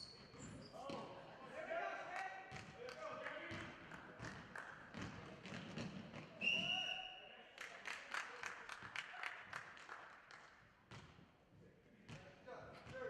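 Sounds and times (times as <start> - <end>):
sharp knocks from basketball play: 3.5 - 6.4
referee's whistle blast: 6.4 - 7.3.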